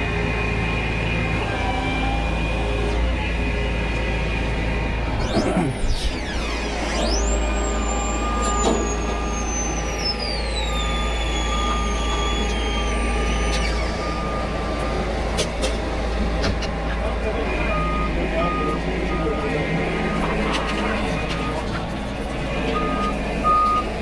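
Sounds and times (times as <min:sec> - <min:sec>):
diesel engine under load: 0:00.0 - 0:24.0
high whine: 0:03.5 - 0:24.0
steady higher tone: 0:05.0 - 0:15.3.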